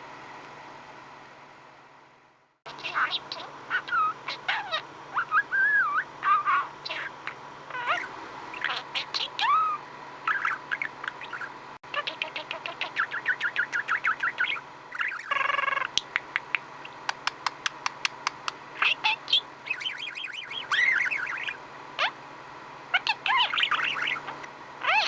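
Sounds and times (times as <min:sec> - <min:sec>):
budgerigar chattering: 0:02.7 - 0:17.1, 0:18.8 - 0:22.2, 0:22.9 - 0:25.0.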